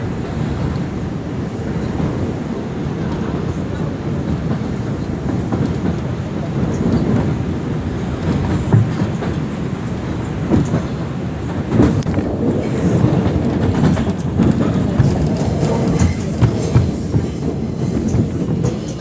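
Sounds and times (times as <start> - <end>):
subway car low rumble: 0.0 - 19.0
wheels clacking over rail joints: 10.4 - 19.0.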